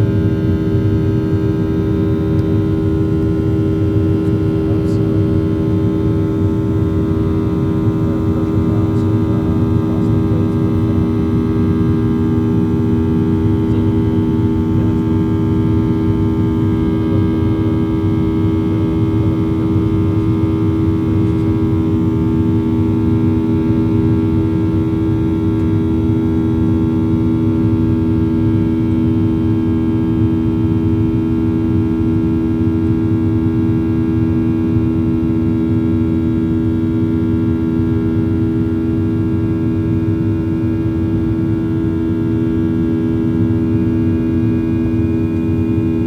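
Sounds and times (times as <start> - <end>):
jet aircraft hum: 0.0 - 17.6, 42.5 - 46.0.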